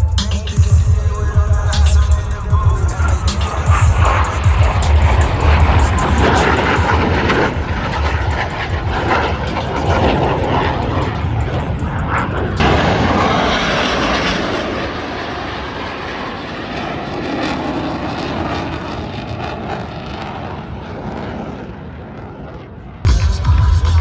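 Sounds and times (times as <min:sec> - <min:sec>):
music: 0:00.0 - 0:12.6, 0:23.1 - 0:24.0
jets roaring overhead: 0:00.0 - 0:23.1.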